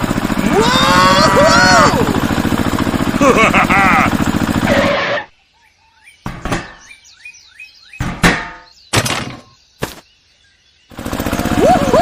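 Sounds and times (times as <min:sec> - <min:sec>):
small motor running: 0:00.0 - 0:05.0, 0:10.9 - 0:12.0.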